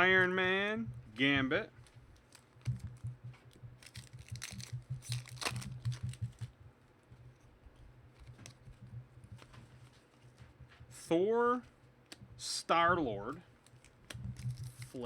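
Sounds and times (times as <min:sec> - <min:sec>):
foil wrapper crinkling: 0:01.8 - 0:06.6, 0:13.5 - 0:15.0.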